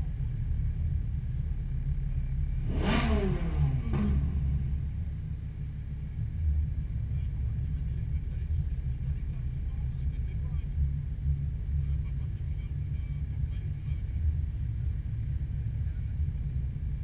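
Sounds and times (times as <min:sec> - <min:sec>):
car engine revving: 0:00.0 - 0:17.0
low engine rumble: 0:00.0 - 0:17.0.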